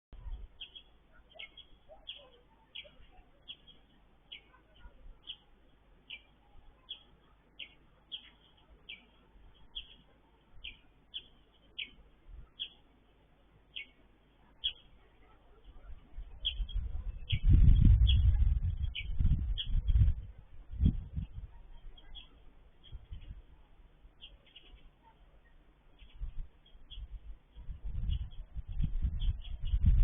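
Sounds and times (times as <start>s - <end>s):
small bird chirping: 0.2s - 12.9s, 13.6s - 30.0s
low rumble: 16.2s - 22.0s.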